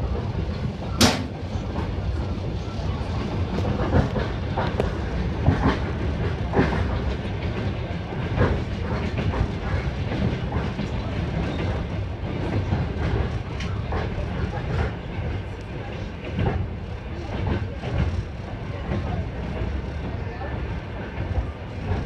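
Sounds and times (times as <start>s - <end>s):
train carriage low rumble: 0.0s - 22.0s
wheels clacking over rails: 0.6s - 1.9s.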